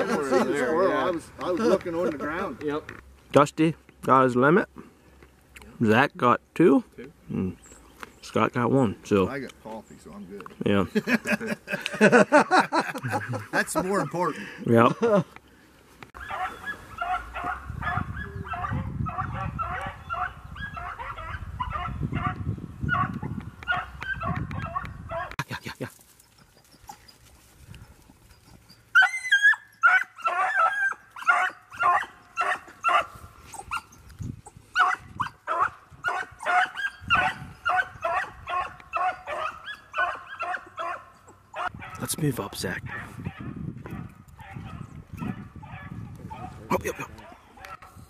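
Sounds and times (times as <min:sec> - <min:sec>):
hunting dogs barking: 0:16.2 - 0:25.4, 0:29.0 - 0:33.9, 0:34.7 - 0:42.0, 0:42.8 - 0:48.0.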